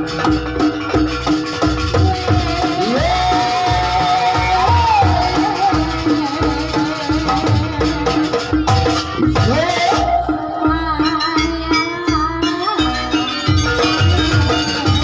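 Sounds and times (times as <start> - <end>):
drum beats: 0.0 - 15.0
pitched percussion strikes: 0.0 - 15.0
rattling percussion: 0.0 - 15.0
sliding melodic line: 9.4 - 15.0.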